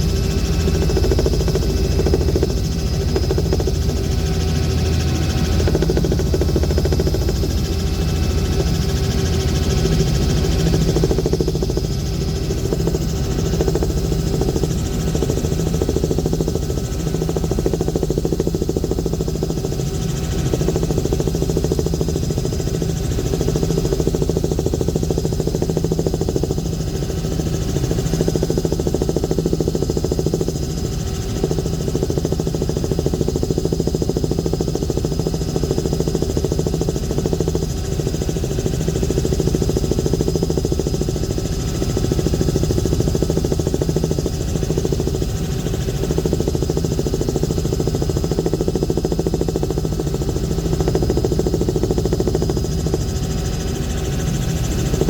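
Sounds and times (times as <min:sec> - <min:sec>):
aircraft engine droning: 0:00.0 - 0:21.5, 0:47.5 - 0:55.0.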